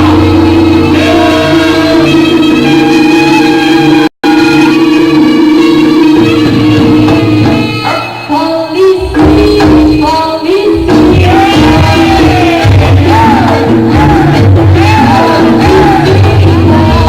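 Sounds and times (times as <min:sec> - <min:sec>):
person singing: 0:00.0 - 0:05.5, 0:06.2 - 0:17.0
band playing sustained tones: 0:00.0 - 0:08.7
heavy drumming: 0:00.0 - 0:17.0.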